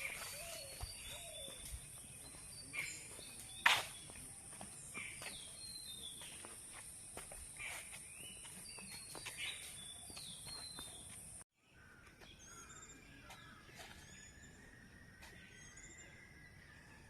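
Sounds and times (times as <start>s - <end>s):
birds whistling: 0.0s - 6.5s, 7.6s - 11.2s, 12.3s - 17.0s.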